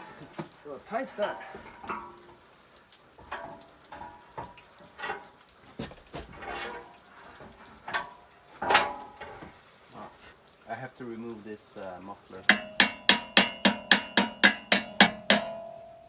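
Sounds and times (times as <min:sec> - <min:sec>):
hand tools clinking on metal: 0:07.9 - 0:09.4.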